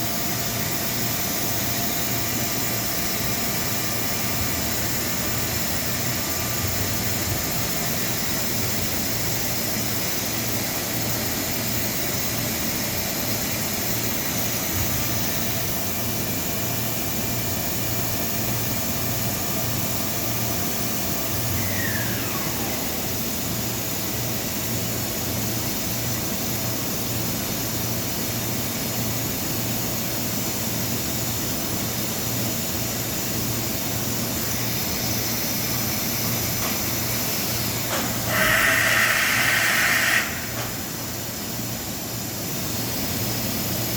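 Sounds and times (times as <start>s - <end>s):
industrial machine hiss and hum: 0.0s - 43.9s
short falling whistle: 21.5s - 23.0s.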